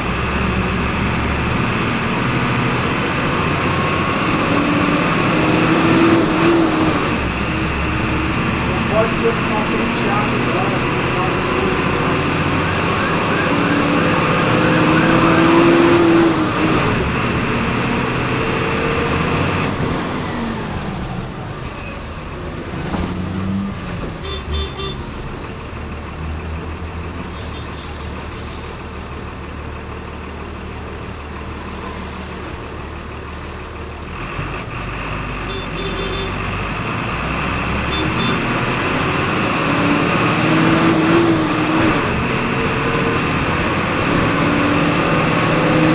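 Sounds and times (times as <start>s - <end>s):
bus engine: 0.0s - 45.9s.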